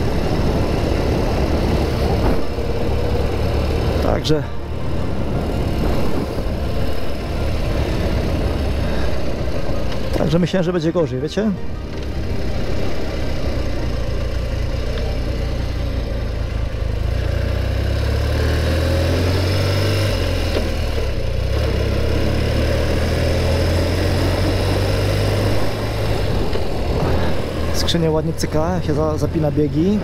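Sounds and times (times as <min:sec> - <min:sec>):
wind noise: 0:00.0 - 0:04.1, 0:04.7 - 0:10.0, 0:24.2 - 0:27.8
motorcycle engine running: 0:00.0 - 0:30.0.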